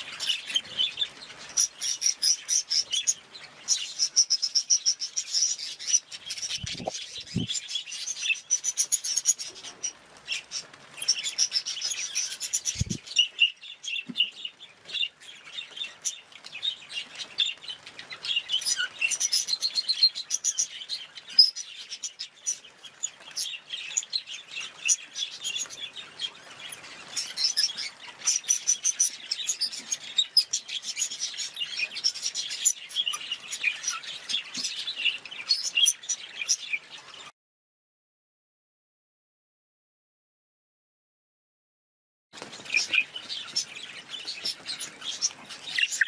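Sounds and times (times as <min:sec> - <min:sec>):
budgerigars chirping and chattering: 0:00.0 - 0:37.3, 0:42.4 - 0:46.0.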